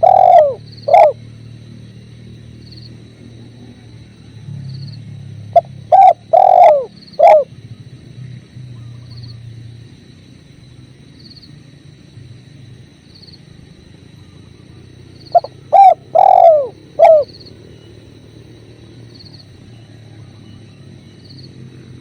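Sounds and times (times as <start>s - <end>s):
dove cooing: 0.0s - 1.2s, 5.5s - 7.5s, 15.3s - 17.4s.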